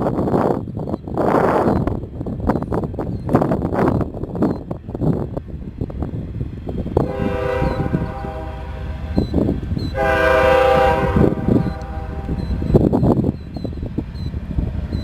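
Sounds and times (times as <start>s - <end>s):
low train rumble: 0.0s - 15.0s
locomotive air horn: 7.0s - 9.2s, 9.9s - 12.4s.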